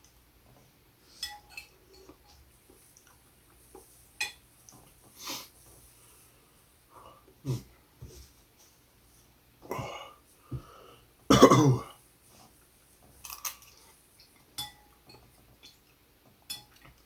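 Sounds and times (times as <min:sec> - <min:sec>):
man coughing: 0:11.3 - 0:11.9.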